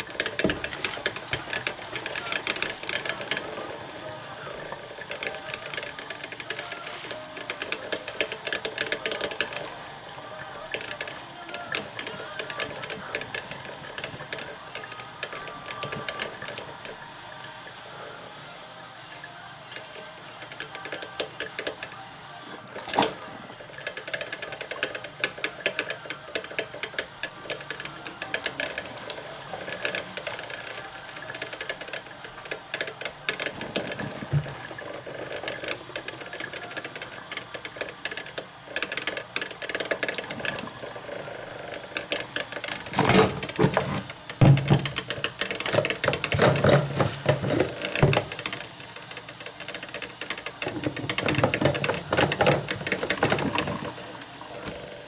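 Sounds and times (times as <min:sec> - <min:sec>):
objects clicking and rattling: 0:42.0 - 0:54.9
knocks: 0:43.0 - 0:45.2.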